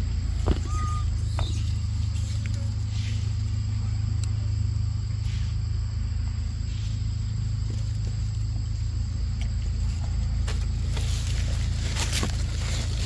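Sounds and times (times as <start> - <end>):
high-pitched whine: 0.0 - 7.3
low outdoor rumble: 0.0 - 13.0
brief high squeak: 0.4 - 2.8.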